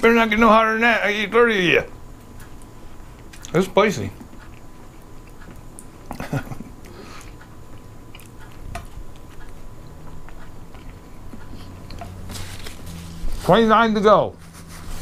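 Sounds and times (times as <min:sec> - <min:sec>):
man chewing: 0:02.2 - 0:13.4.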